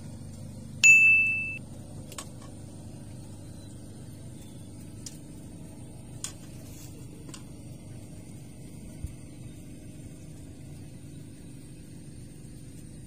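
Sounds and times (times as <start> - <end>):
low background rumble: 0.0 - 13.0
bright single-tone chime: 0.8 - 1.6.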